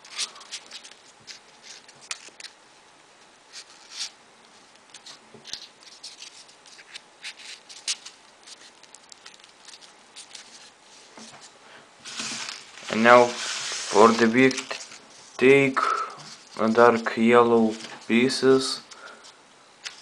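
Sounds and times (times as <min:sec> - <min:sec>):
paper rustling and clicking: 0:00.0 - 0:02.6, 0:04.7 - 0:11.4.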